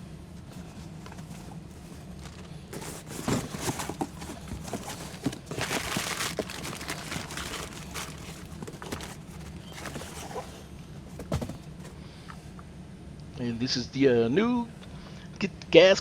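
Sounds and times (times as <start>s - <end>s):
crinkling rustle: 0.4s - 12.0s.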